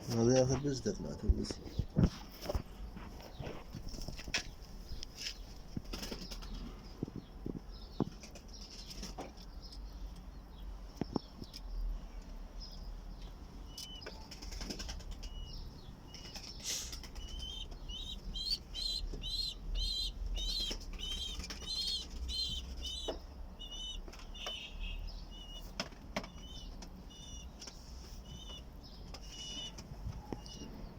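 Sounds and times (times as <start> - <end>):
bird chirping: 12.5 - 30.9.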